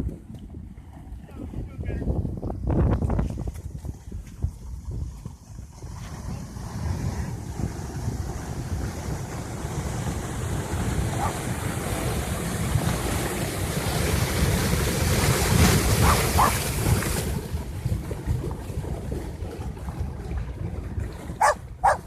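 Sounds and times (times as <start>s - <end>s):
wind buffeting microphone: 0.0s - 22.0s
flood water rushing: 5.8s - 22.0s.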